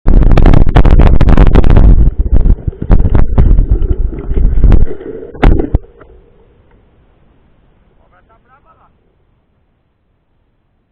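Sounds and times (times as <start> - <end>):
wind buffeting microphone: 0.0 - 6.1.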